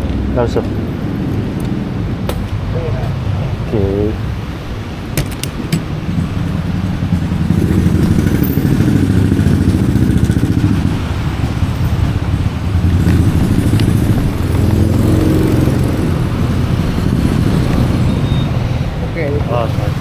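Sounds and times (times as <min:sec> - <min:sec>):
scooter engine: 0:04.2 - 0:20.0.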